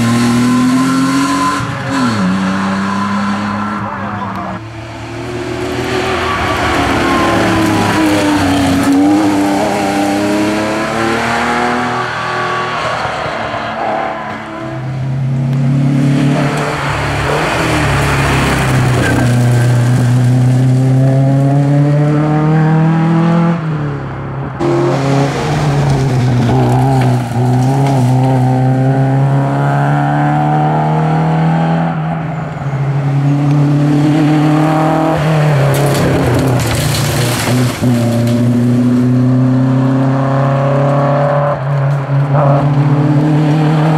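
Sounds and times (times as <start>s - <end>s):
rally car engines revving: 0.0s - 43.9s.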